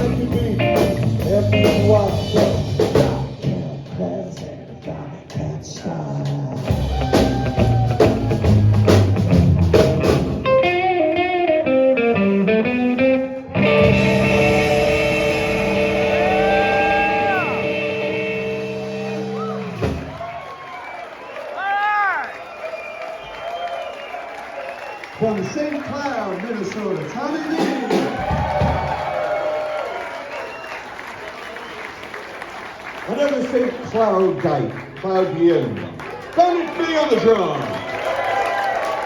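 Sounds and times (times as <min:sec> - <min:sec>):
rockabilly band playing: 0:00.0 - 0:04.4, 0:06.3 - 0:20.4, 0:27.4 - 0:29.8.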